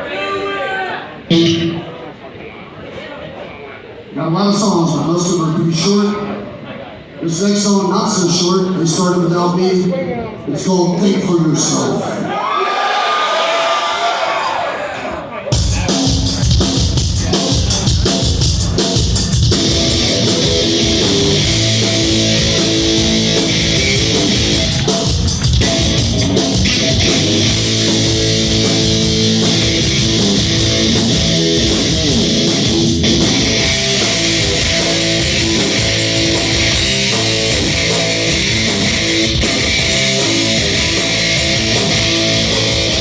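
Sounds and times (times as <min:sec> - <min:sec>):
distorted electric guitars: 0:01.3 - 0:01.9, 0:15.5 - 0:43.0
fast drums: 0:15.5 - 0:43.0
bass guitar: 0:15.6 - 0:43.0.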